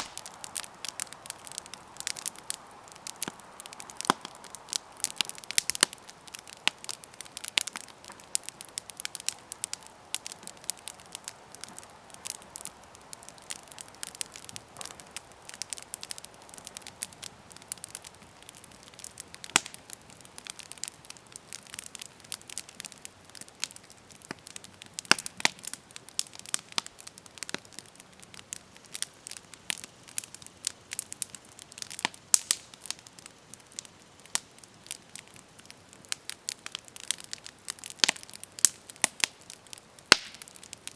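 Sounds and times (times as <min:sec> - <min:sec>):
campfire crackling: 0:00.0 - 0:40.9.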